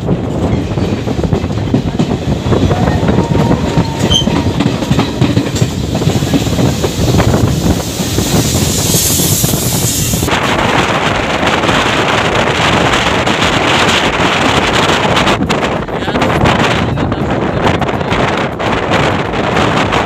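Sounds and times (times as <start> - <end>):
train wheels clattering: 0.0 - 10.3
rushing hiss: 5.6 - 10.4.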